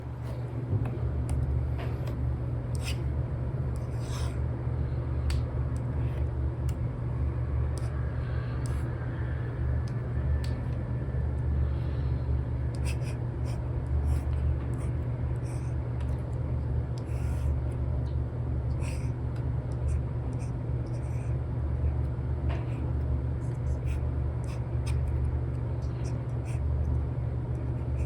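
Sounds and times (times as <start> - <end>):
steady low rumble: 0.0 - 28.0
stylus scratchy strokes: 3.8 - 4.4.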